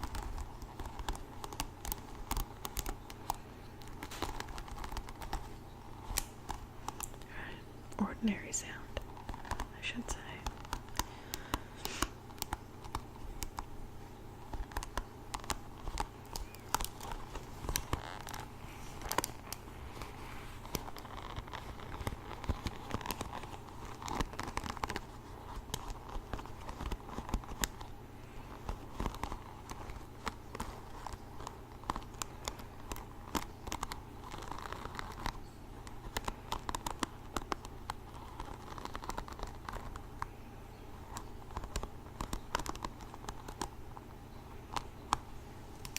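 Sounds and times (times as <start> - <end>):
faint rustle: 0.0 - 45.9
irregular clicking and scratching: 0.0 - 45.9.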